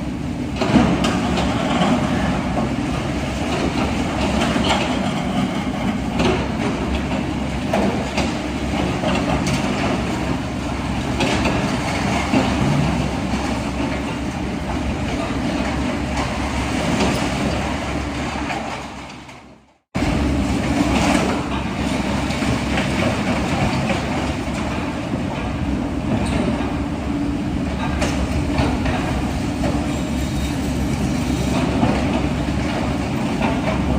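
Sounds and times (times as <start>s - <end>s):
diesel machinery running: 20.0s - 33.9s.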